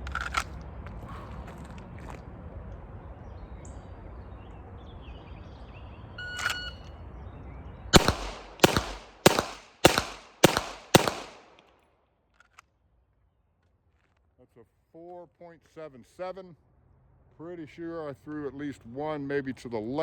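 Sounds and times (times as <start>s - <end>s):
pistol shots with echo: 8.0s - 11.6s.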